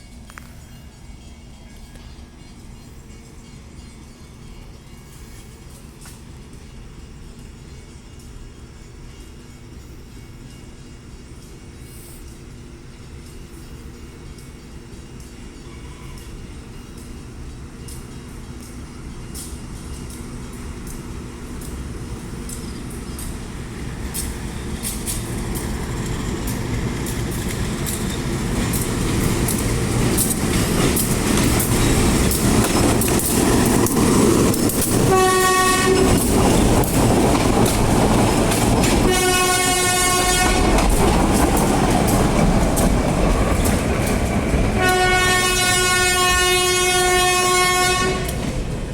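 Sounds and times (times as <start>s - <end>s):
locomotive engine rumble: 0.0s - 48.9s
wheels clicking over rail joints: 17.8s - 45.2s
train air horn blasts: 35.0s - 36.6s, 39.0s - 40.8s, 44.8s - 48.4s.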